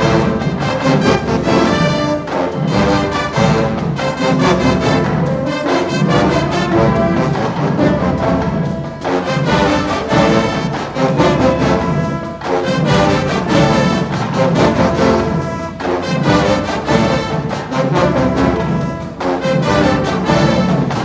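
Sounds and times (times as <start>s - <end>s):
brass section playing loud chords: 0.0s - 21.0s
marching band drums: 0.0s - 21.0s.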